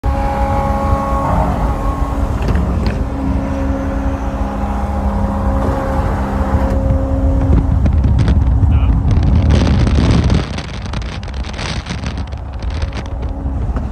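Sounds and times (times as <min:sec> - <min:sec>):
car engine cruising: 0:00.0 - 0:13.9
road and wind rumble: 0:00.0 - 0:13.9.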